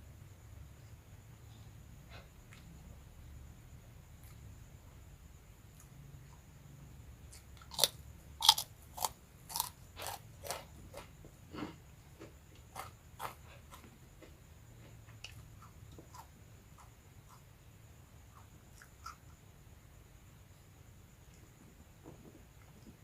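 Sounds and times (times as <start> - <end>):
crispy crackers being chewed: 7.3 - 17.4.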